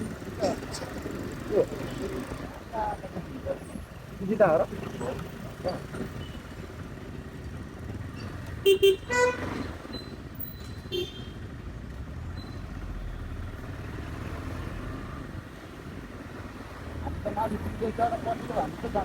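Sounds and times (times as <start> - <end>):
road and engine noise: 0.0 - 19.0
vehicle horns honking: 8.6 - 9.8, 10.8 - 11.5.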